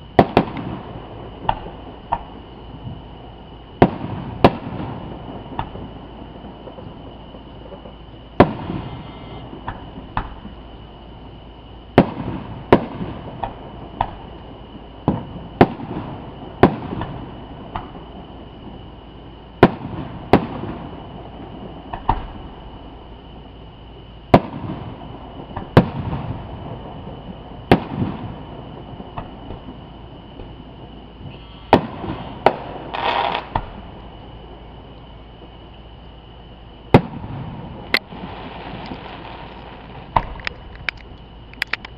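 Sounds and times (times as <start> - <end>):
fireworks bangs: 0.0 - 3.0, 3.8 - 10.7, 11.9 - 14.3, 15.0 - 18.8, 24.3 - 34.0, 36.9 - 41.9
small firework pops: 0.2 - 0.8, 1.4 - 3.0, 3.8 - 10.6, 12.0 - 18.1, 19.6 - 20.9, 21.7 - 22.4, 24.3 - 24.9, 25.5 - 26.4, 27.1 - 30.6, 31.2 - 34.1, 36.9 - 41.9.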